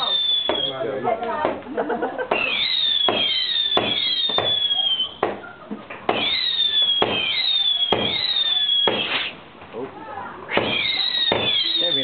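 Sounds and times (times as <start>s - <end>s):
whistling fireworks: 0.0s - 1.0s, 2.2s - 5.5s, 6.1s - 9.4s, 10.5s - 12.0s.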